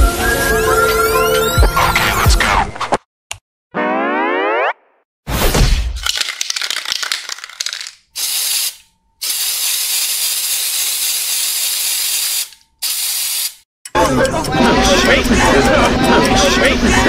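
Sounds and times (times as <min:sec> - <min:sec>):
spray can rattling: 0:06.0 - 0:13.6
spray can hissing: 0:06.5 - 0:13.6.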